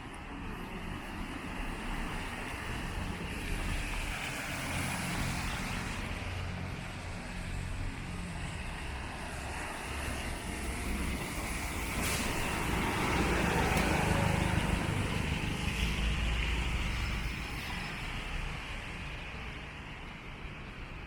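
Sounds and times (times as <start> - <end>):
passing traffic rumble: 0.0 - 21.0
tyres on wet pavement: 0.0 - 21.0.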